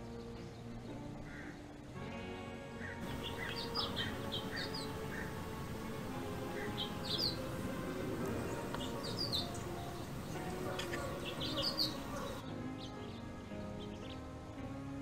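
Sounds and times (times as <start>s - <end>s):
soft background music: 0.0s - 15.0s
small bird chirping: 2.9s - 12.4s.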